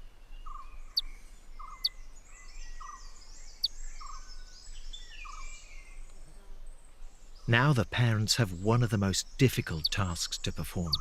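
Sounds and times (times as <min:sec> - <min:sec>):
chorus of forest birds: 0:00.0 - 0:11.0
kingfisher high chirps: 0:09.2 - 0:11.0.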